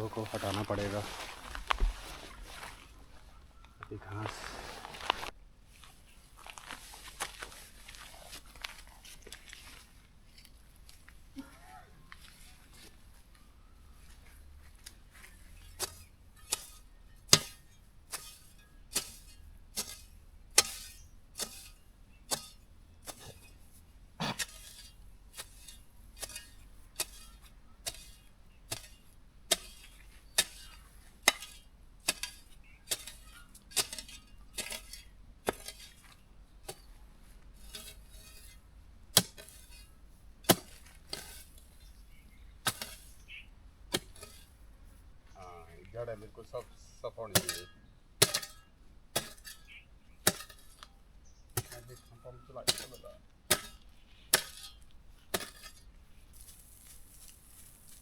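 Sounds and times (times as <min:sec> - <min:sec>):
hand tool chopping ground: 0:15.2 - 0:37.0, 0:37.6 - 0:44.6, 0:47.2 - 0:58.0.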